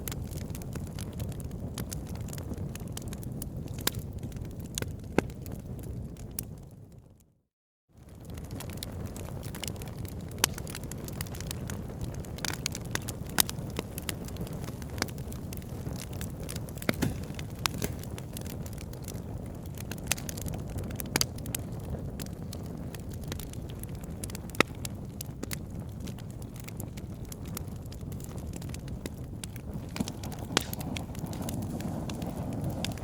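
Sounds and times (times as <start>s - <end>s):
campfire crackling and popping: 0.0s - 7.0s, 8.0s - 33.0s.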